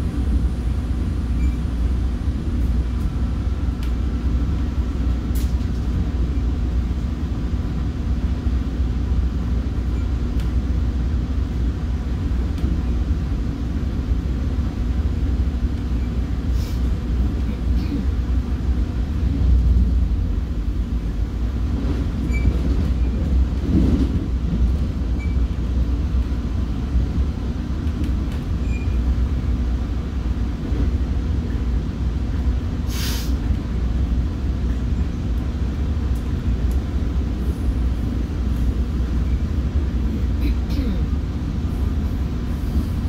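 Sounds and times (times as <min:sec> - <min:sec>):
train rumbling on rails: 0:00.0 - 0:43.0
hiss of air: 0:16.5 - 0:17.0, 0:32.8 - 0:33.5.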